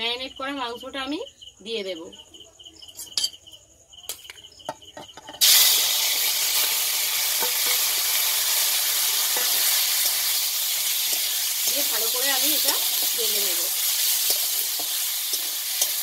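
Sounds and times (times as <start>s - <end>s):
crickets chirping: 0.0s - 16.0s
chicken sizzling in hot oil: 5.4s - 16.0s.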